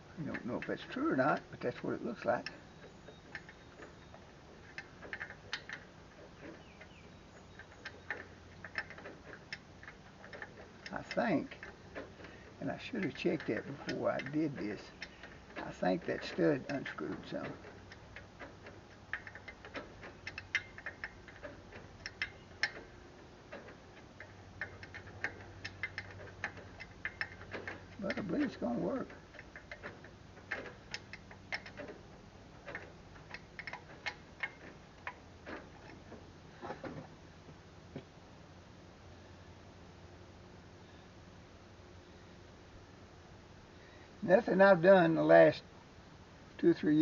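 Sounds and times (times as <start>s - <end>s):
low steady hum: 0.0s - 47.0s
tools and metal parts clicking: 0.1s - 37.0s.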